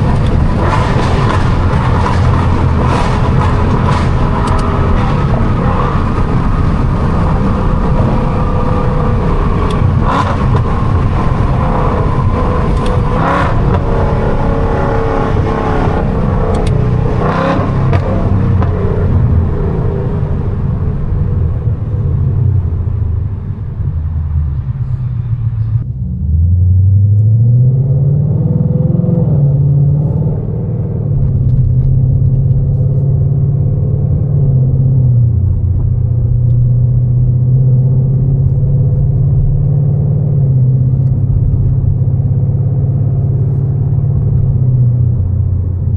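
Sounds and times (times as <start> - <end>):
sharp exhaust cracks: 0.0 - 27.6
car exhaust under hard driving: 0.0 - 45.9.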